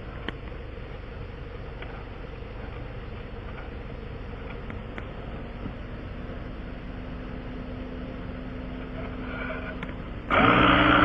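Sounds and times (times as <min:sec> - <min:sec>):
motor running with low drone: 0:00.0 - 0:11.0
loud abrupt sound: 0:09.2 - 0:11.0.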